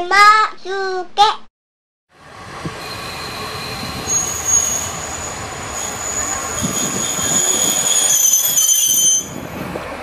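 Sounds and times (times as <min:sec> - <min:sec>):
railcar low rumble: 0:02.1 - 0:10.0
wheels and brakes squealing: 0:02.8 - 0:09.8.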